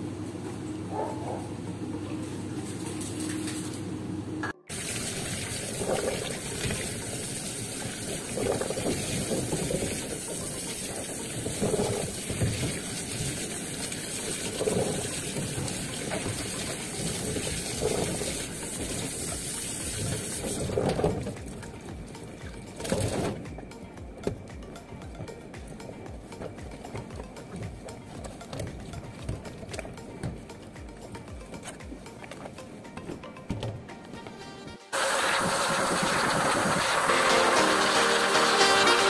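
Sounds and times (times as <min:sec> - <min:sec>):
shower sprayer hissing: 0:04.7 - 0:23.0, 0:34.9 - 0:39.0
water sloshing from a scoop: 0:07.8 - 0:24.5.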